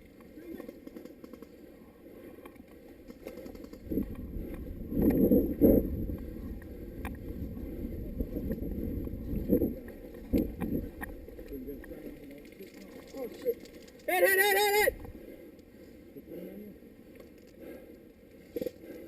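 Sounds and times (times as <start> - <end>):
faint clicks: 9.8 - 14.2.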